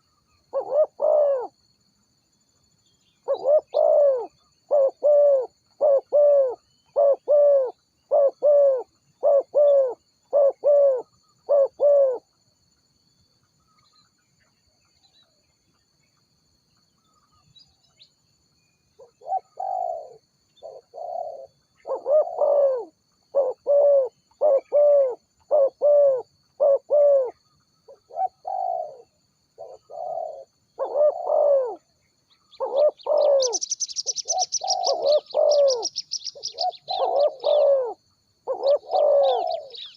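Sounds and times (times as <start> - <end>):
doves cooing: 0.0 - 1.6, 3.2 - 12.2, 19.2 - 31.9, 32.5 - 39.9
high thin bird chirping: 32.3 - 37.7, 38.6 - 39.9.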